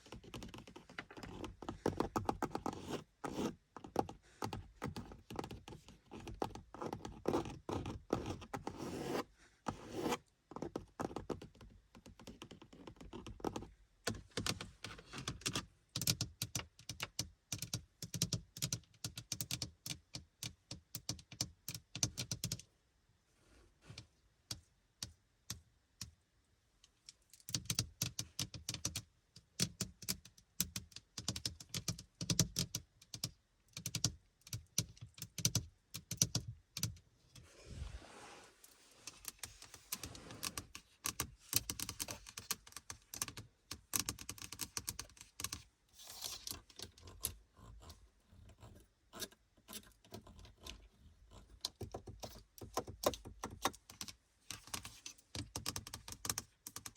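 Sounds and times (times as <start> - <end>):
scratching on car interior: 37.4 - 43.3.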